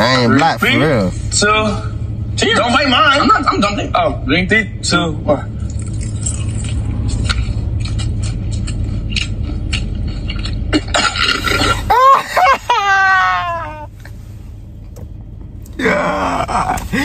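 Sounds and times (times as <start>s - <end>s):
fried chicken crunching: 5.8s - 11.6s.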